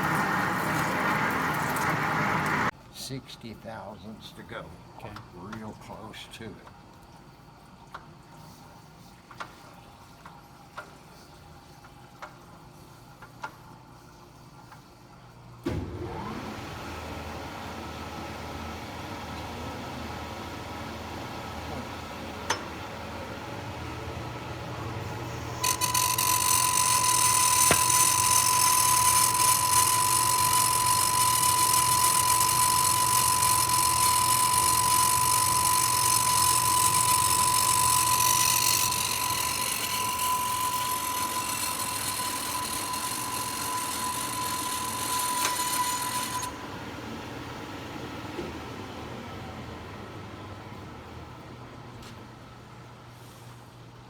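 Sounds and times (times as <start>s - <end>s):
cutting tool high whine: 0.0s - 2.7s, 25.5s - 46.6s
lathe humming: 0.0s - 2.7s, 16.0s - 46.8s.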